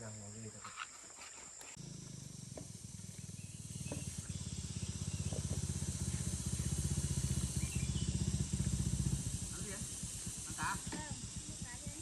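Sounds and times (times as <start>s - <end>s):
motorbike engine idling: 1.8s - 12.0s.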